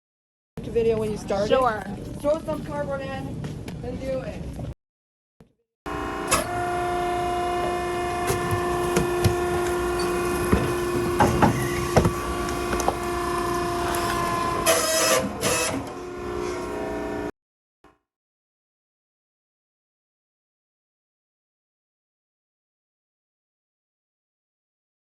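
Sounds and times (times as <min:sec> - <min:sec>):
hydraulic pump whine: 0:05.9 - 0:17.3.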